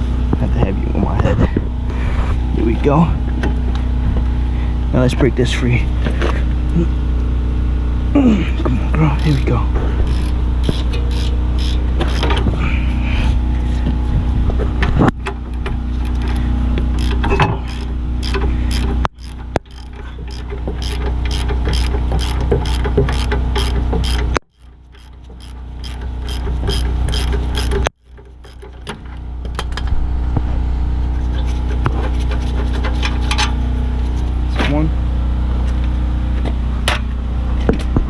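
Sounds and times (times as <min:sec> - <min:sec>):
low hum: 0:00.0 - 0:38.0
ratchet wrench clicking: 0:09.2 - 0:12.4, 0:17.0 - 0:28.9.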